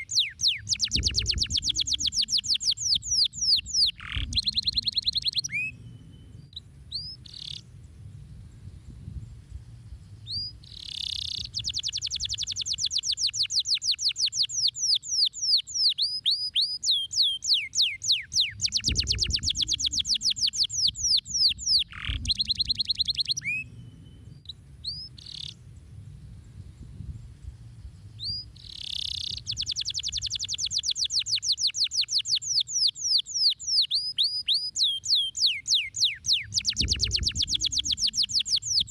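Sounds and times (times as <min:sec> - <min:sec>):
canary single chirps: 0:00.0 - 0:05.8, 0:10.3 - 0:23.7, 0:28.2 - 0:38.9
canary trilling song: 0:00.0 - 0:07.6, 0:10.3 - 0:25.6, 0:28.2 - 0:38.9.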